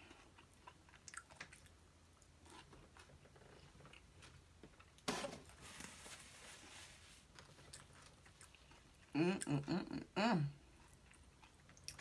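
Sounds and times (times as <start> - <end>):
person chewing softly: 0.0 - 5.0, 7.2 - 12.0.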